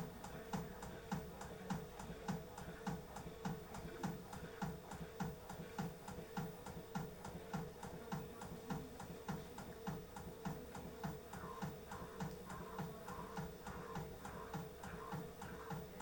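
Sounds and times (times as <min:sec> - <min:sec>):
drum ticking and thumping: 0:00.0 - 0:16.0
washing machine motor hum: 0:00.0 - 0:16.0.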